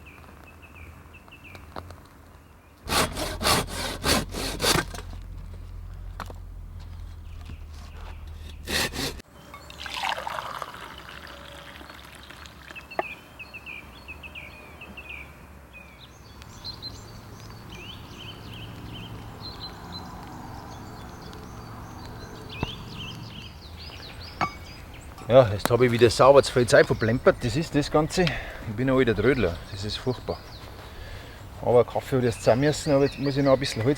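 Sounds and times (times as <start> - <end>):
liquid pouring and gurgling: 9.8 - 12.7.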